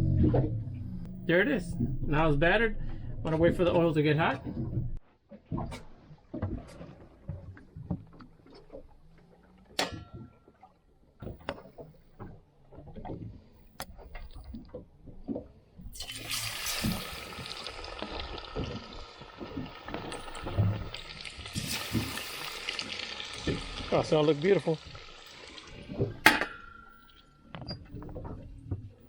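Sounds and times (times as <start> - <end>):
fish frying in hot oil: 16.0 - 26.2.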